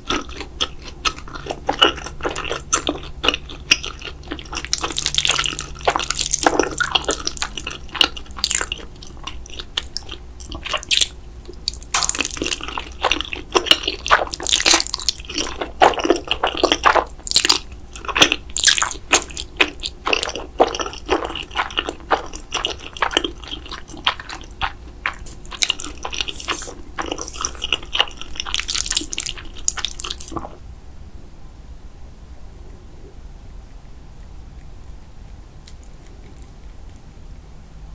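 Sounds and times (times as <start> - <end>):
person biting and chewing food: 0.0 - 30.6.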